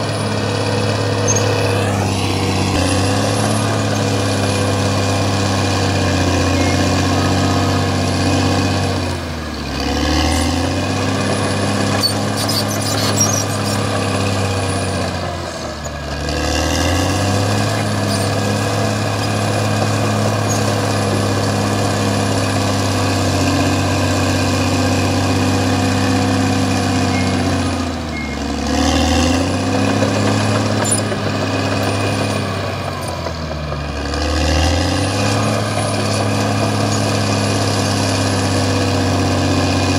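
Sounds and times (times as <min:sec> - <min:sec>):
bulldozer diesel engine working: 0:00.0 - 0:39.9.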